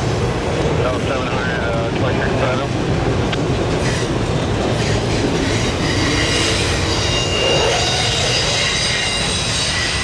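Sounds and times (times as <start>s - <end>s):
train wheels rumbling on rail: 0.0s - 10.0s
steel wheel squeal: 4.7s - 10.0s.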